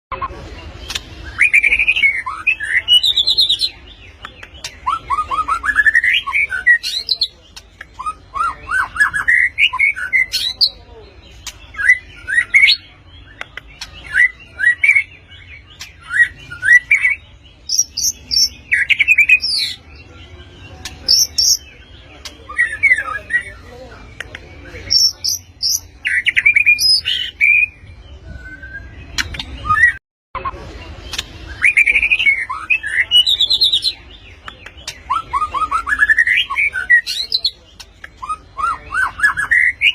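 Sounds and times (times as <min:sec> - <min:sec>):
bird singing whistled notes: 0:11.7 - 0:23.8, 0:24.8 - 0:30.0.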